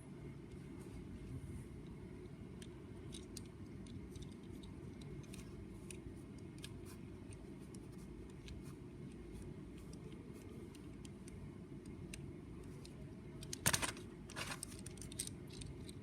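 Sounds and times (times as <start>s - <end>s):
steady low rumble: 0.0s - 16.0s
plastic model engine clicking: 13.4s - 16.0s.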